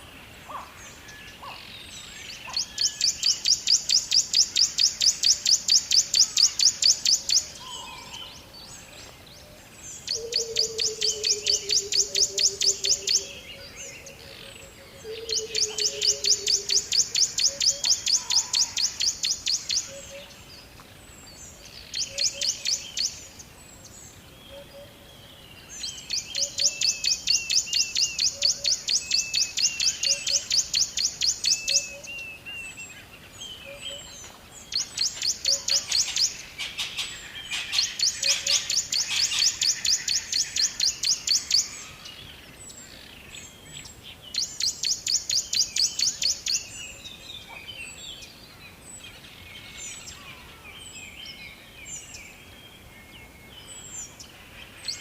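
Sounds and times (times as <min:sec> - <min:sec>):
birds singing fast trills: 0:00.0 - 0:55.0.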